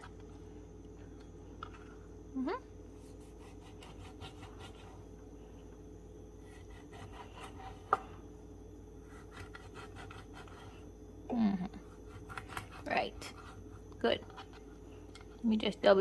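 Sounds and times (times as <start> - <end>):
person humming: 11.3 - 11.8.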